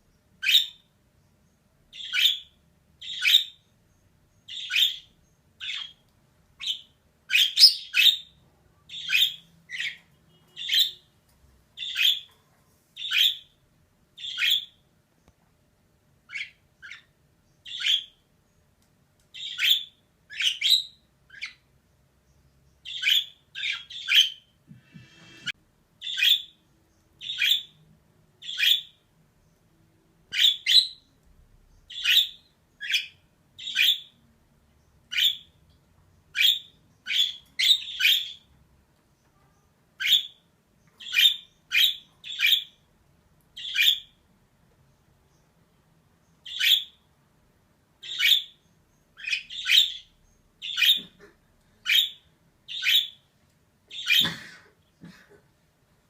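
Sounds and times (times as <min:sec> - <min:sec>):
budgerigar chirping: 0:00.4 - 0:00.9, 0:01.9 - 0:03.7, 0:04.5 - 0:06.0, 0:06.6 - 0:11.1, 0:11.8 - 0:12.3, 0:13.0 - 0:13.6, 0:14.2 - 0:14.8, 0:16.2 - 0:18.2, 0:19.4 - 0:21.7, 0:22.8 - 0:26.6, 0:27.2 - 0:27.8, 0:28.4 - 0:29.0, 0:30.3 - 0:31.1, 0:31.9 - 0:34.2, 0:35.1 - 0:35.6, 0:36.3 - 0:38.5, 0:40.0 - 0:40.4, 0:41.0 - 0:42.8, 0:43.6 - 0:44.2, 0:46.4 - 0:47.0, 0:48.0 - 0:51.2, 0:51.8 - 0:53.2, 0:53.9 - 0:54.3.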